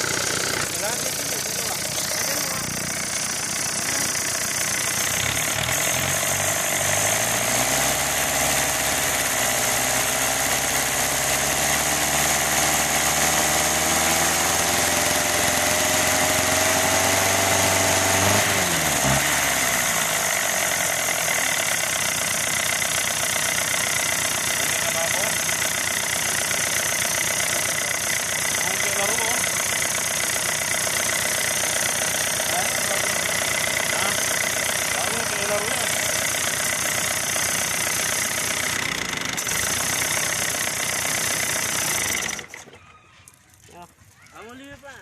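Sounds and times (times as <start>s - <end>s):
diesel engine running: 0.0s - 42.8s.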